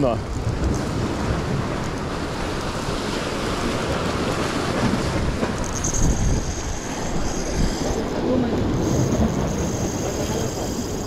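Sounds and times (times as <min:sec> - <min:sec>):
sea surf: 0:00.0 - 0:11.0
wind buffeting microphone: 0:00.0 - 0:11.0
thin high whine: 0:05.6 - 0:11.0.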